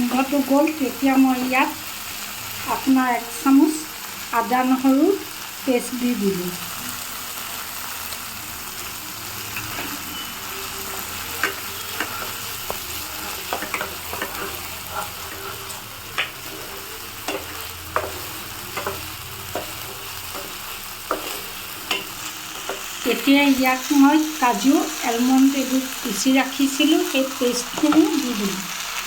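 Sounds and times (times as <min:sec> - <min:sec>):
onions sizzling in oil: 0:00.0 - 0:29.0
spoon scraping a pan: 0:09.5 - 0:23.0.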